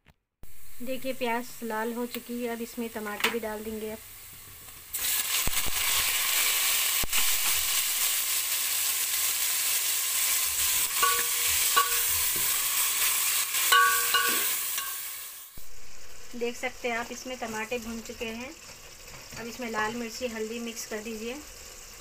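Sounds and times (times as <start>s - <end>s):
tomatoes sizzling in hot oil: 0.4s - 22.0s
metal spoon scraping pot: 10.8s - 12.6s, 13.6s - 15.1s.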